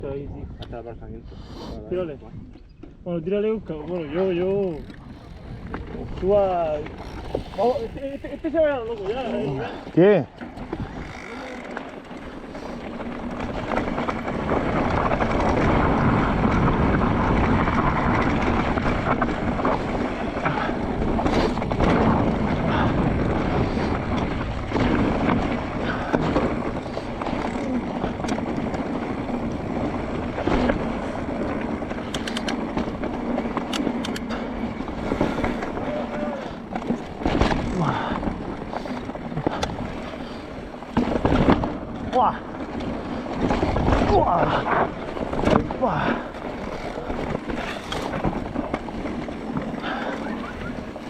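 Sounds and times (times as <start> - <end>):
wind on microphone: 0.0 - 51.0
bike tyres rumbling on dirt: 2.9 - 51.0
bike knocks and rattles: 4.1 - 51.0
quick clicks: 32.1 - 32.6.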